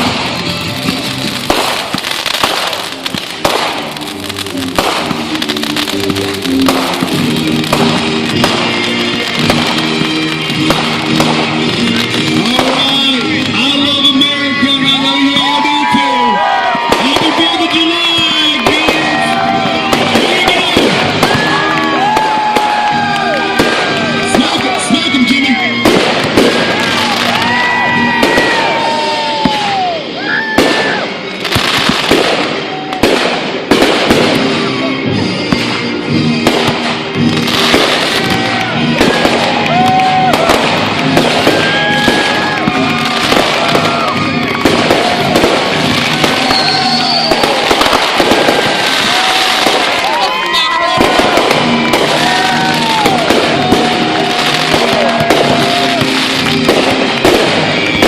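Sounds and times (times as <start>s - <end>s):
firework bangs: 0.0s - 58.0s
firework crackling: 0.0s - 58.0s
music playing: 0.0s - 58.0s
whistling firework shell: 40.2s - 48.8s, 56.7s - 58.0s.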